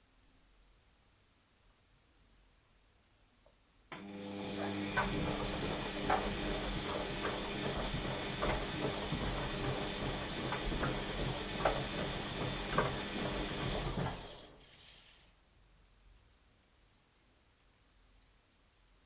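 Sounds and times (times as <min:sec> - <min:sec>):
washing machine running: 0:04.0 - 0:14.6.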